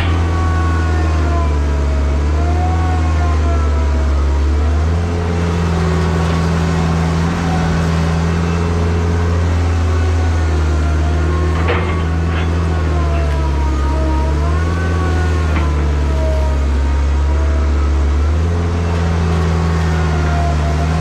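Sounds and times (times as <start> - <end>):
diesel truck engine running: 0.0 - 21.0
metal clank: 11.5 - 13.2.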